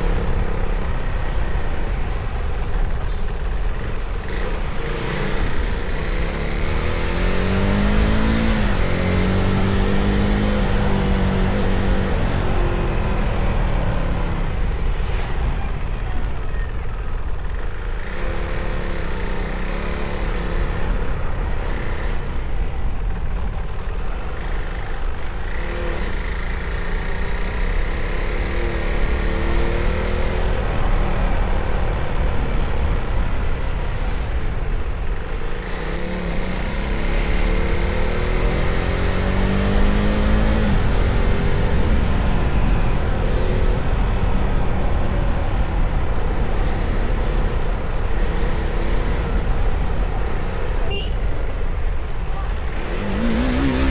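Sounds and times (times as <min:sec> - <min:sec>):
motorcycle engine revving: 0:00.0 - 0:15.2, 0:35.2 - 0:53.9.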